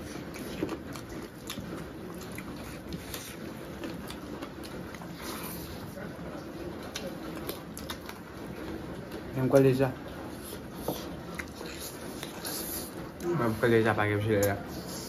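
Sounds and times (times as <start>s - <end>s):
people chewing with wet smacks: 0.0s - 15.0s.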